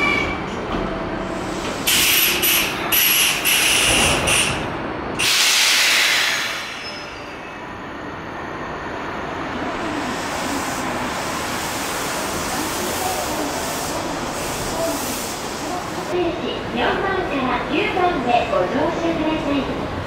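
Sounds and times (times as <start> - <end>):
high train squeal: 0.0 - 0.6, 1.5 - 4.6, 5.2 - 9.0
low steady train rumble: 0.0 - 20.0.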